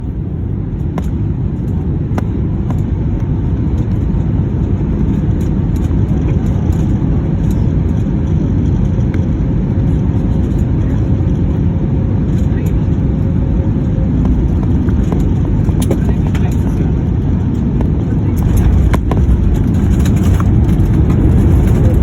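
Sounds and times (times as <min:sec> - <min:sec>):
airliner engines rumbling: 0:00.0 - 0:22.0
faint rattles: 0:12.3 - 0:22.0.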